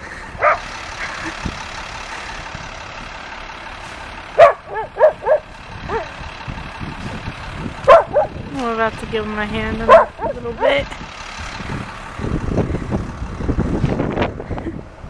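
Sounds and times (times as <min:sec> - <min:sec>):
dog barking: 0:00.4 - 0:00.6, 0:04.4 - 0:06.1, 0:07.9 - 0:08.3, 0:09.9 - 0:10.8.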